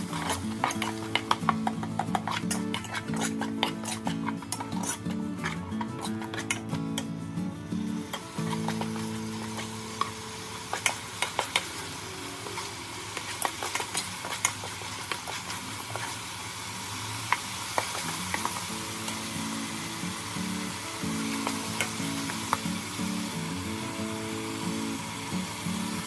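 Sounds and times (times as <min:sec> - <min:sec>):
metal ladle scraping a pot: 0:00.0 - 0:06.8
food sizzling in oil: 0:00.0 - 0:26.0.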